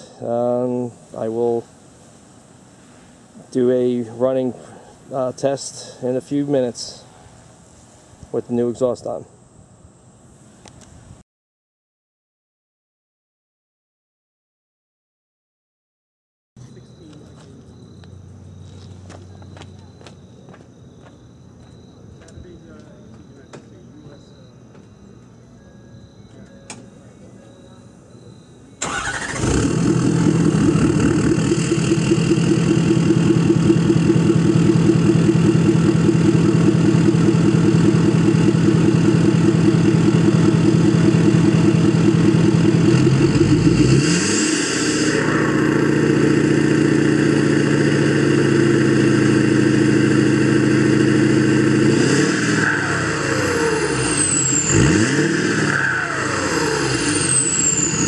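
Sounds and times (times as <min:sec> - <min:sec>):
diesel truck engine revving: 0:28.8 - 0:58.0
turbo whistle: 0:52.2 - 0:58.0.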